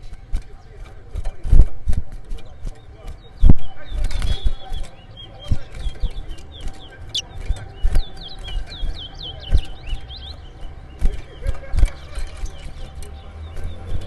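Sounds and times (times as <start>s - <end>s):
bird whistling song: 3.1s - 14.0s.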